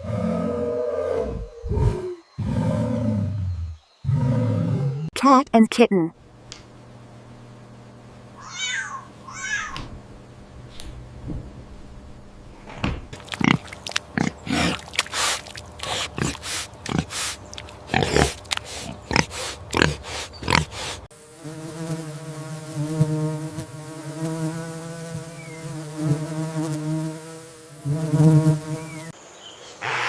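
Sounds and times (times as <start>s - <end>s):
cat and kitten meowing: 8.4s - 9.8s
flying insect buzzing: 13.2s - 29.2s.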